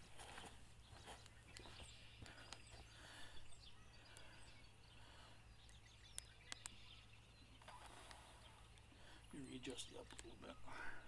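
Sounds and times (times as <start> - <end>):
light sharp clicks: 1.2 - 2.7, 5.6 - 6.8, 10.0 - 10.4.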